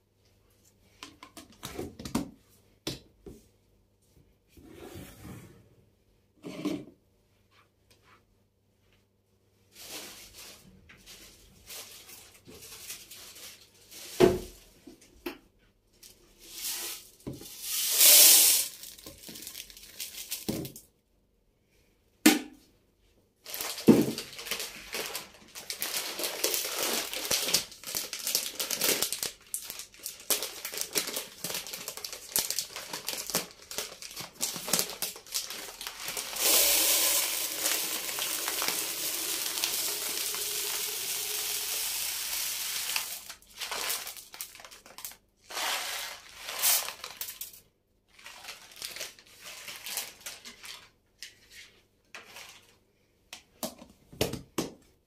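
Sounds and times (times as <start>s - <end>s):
packaging crinkling: 17.9s - 20.8s, 23.5s - 41.8s, 42.4s - 50.9s
steady hiss: 36.4s - 43.2s.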